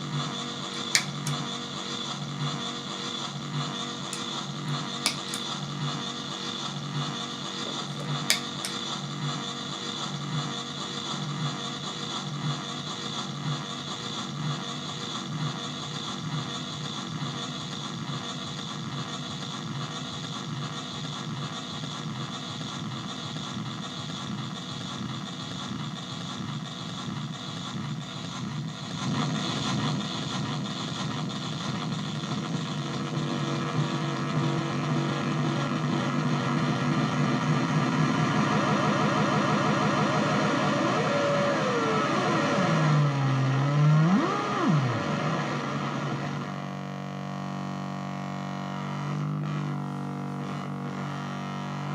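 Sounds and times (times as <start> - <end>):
electronic noise drone: 28.8 - 51.9.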